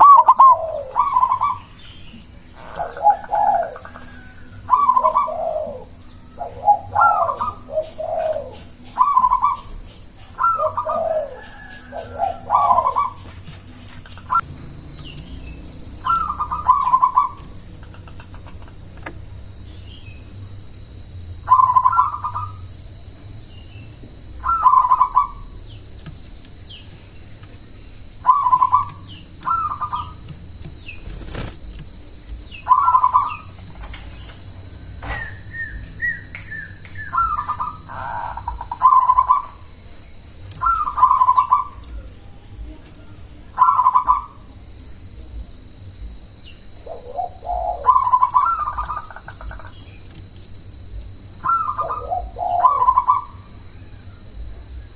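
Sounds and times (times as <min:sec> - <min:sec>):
dove cooing: 0:00.0 - 0:01.8, 0:02.6 - 0:09.8, 0:10.4 - 0:18.6, 0:21.5 - 0:22.6, 0:24.4 - 0:25.5, 0:28.2 - 0:33.9, 0:37.0 - 0:39.7, 0:40.6 - 0:42.8, 0:43.6 - 0:44.4, 0:46.8 - 0:49.8, 0:51.4 - 0:53.5
small bird chirps: 0:00.0 - 0:20.5, 0:21.4 - 0:27.6, 0:28.2 - 0:34.3, 0:35.0 - 0:44.5, 0:46.4 - 0:54.0
high-pitched whine: 0:00.0 - 0:54.9.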